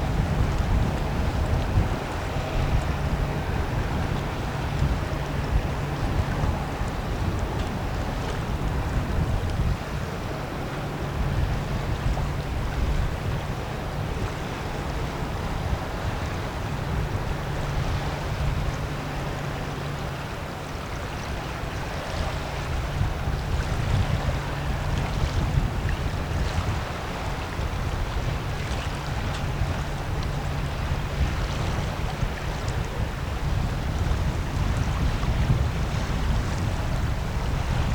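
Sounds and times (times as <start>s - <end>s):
boat diesel engines humming: 0.0s - 37.9s
water wash: 0.0s - 37.9s
wind buffeting microphone: 0.0s - 37.9s.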